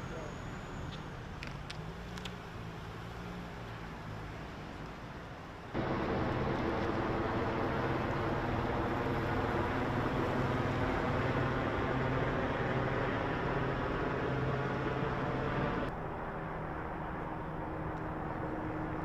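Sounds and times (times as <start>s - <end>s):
vehicle engine idling: 5.8s - 15.9s.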